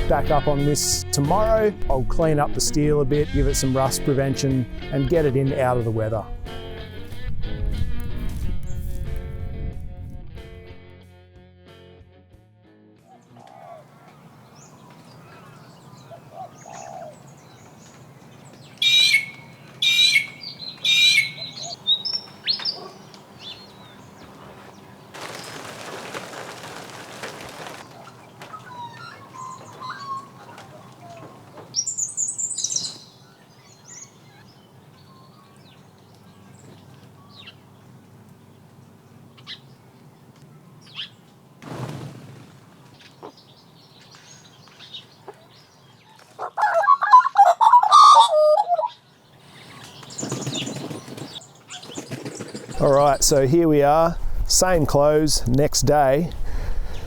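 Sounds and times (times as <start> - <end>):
loud bird calls: 13.1 - 37.8, 40.4 - 53.2.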